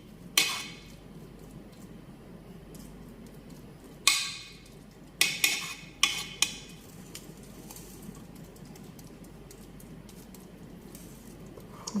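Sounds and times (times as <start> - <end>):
utensil clanking on metal pan: 0.4 - 0.8, 5.2 - 6.6.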